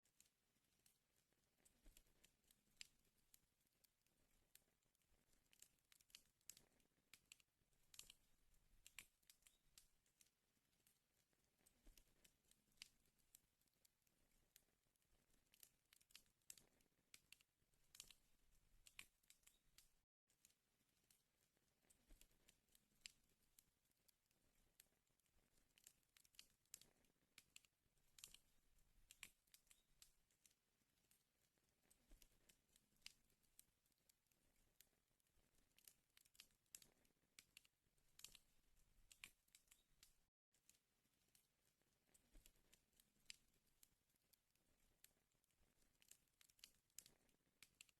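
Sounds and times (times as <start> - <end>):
wood fire crackling: 1.5 - 20.0, 24.2 - 33.6, 34.4 - 40.2.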